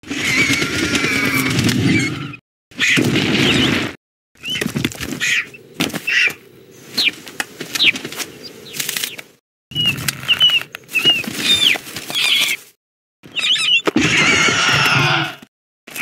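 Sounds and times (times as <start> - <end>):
wings flapping: 0.0 - 15.2
cartoon bird chirps and squawks: 13.3 - 15.2.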